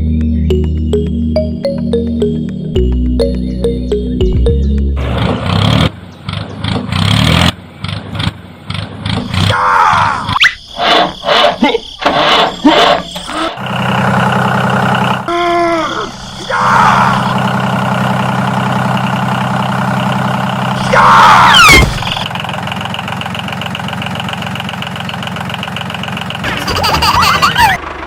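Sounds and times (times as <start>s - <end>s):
sliding whistle-like sound effects: 10.3s - 11.5s
small engine idling: 10.8s - 15.3s, 16.1s - 21.0s, 22.0s - 28.0s.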